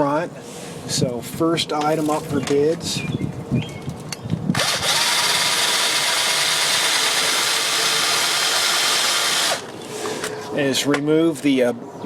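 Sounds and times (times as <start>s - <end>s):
power tool motor running: 4.5s - 9.7s.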